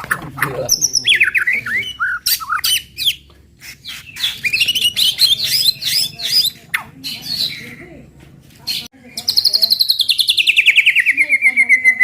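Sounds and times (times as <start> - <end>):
bird singing chirps and whistles: 0.7 - 3.2, 3.8 - 7.7, 9.2 - 12.0.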